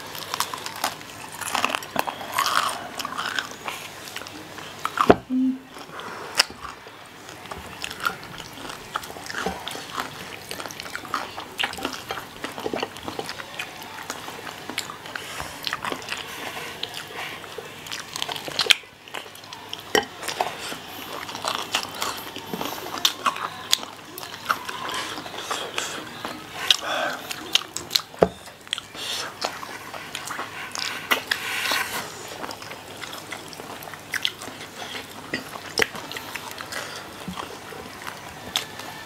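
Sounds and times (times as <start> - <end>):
people chewing crunchy food: 0.0 - 39.0.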